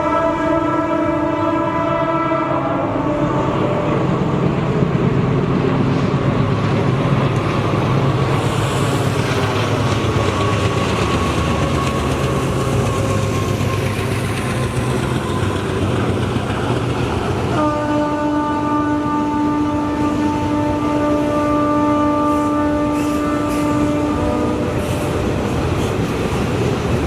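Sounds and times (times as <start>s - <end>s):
train engine drone: 0.0s - 27.0s
wheels rattling on rails: 3.6s - 17.8s, 22.7s - 27.0s.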